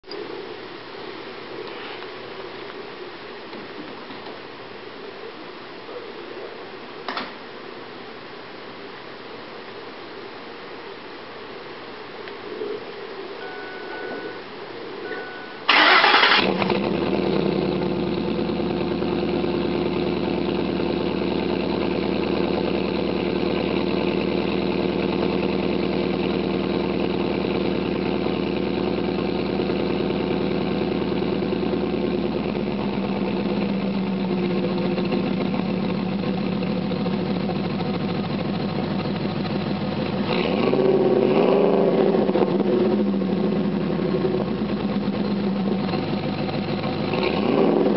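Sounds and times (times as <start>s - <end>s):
engine throttle blip: 15.0s - 18.4s
truck engine idling: 15.2s - 40.4s, 42.0s - 47.9s.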